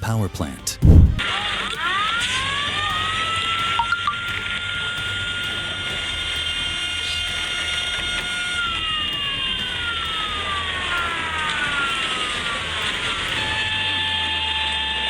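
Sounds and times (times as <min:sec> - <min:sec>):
steady rushing noise: 0:00.8 - 0:01.2.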